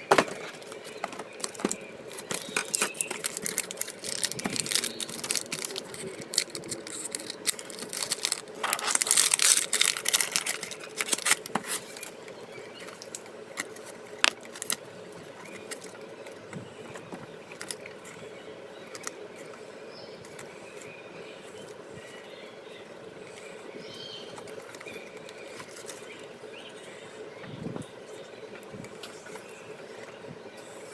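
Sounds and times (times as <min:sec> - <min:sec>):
trading cards rustling and crinkling: 0:00.0 - 0:17.9
faint steady hum: 0:00.0 - 0:30.9.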